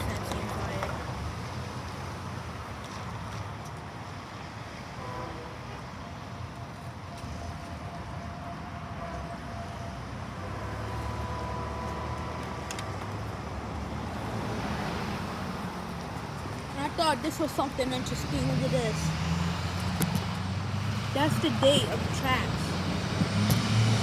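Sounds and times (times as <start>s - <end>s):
distant locomotive horn: 4.9s - 6.4s, 7.2s - 13.1s.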